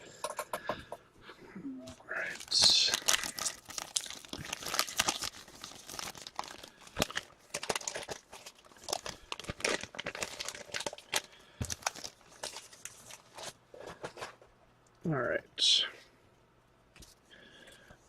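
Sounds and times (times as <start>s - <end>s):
cards and wrappers handled: 2.2s - 14.4s.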